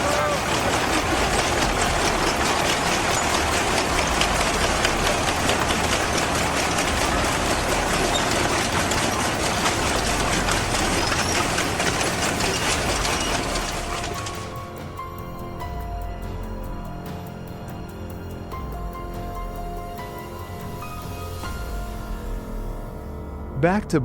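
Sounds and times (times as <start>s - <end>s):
metallic clatter and rattle: 0.0s - 15.8s
tractor engine running: 0.0s - 20.2s.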